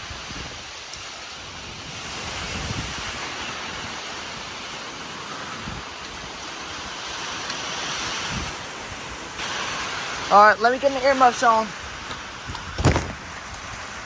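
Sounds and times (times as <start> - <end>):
strong wind blowing: 0.0 - 14.0
wind buffeting microphone: 0.0 - 14.0.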